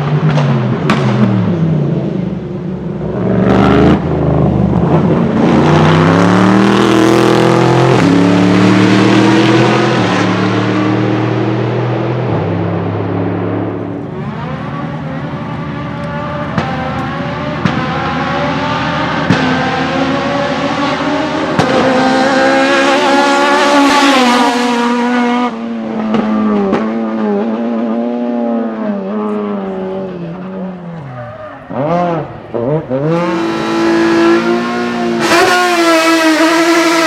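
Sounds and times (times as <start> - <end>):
car engine revving: 0.0 - 37.0
exhaust cracks: 13.6 - 20.0.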